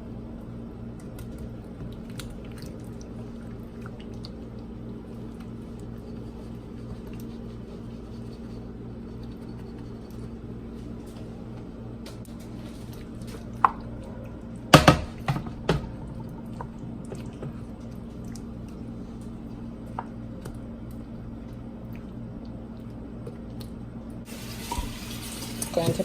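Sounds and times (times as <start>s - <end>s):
steady low hum: 0.0s - 26.0s
wet squishing of sauce: 1.0s - 8.2s, 16.2s - 23.8s.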